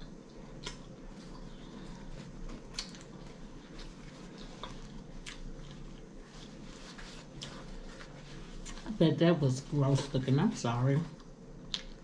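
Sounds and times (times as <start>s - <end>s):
chewing and mouth sounds: 0.0s - 6.6s, 11.2s - 12.0s
paper towel handling: 6.2s - 10.8s.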